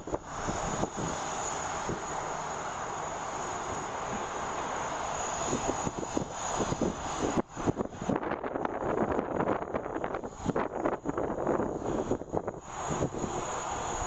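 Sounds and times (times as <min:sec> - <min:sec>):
wind buffeting microphone: 0:00.0 - 0:02.4, 0:05.2 - 0:14.0
jet engines roaring with high whine: 0:00.0 - 0:14.0.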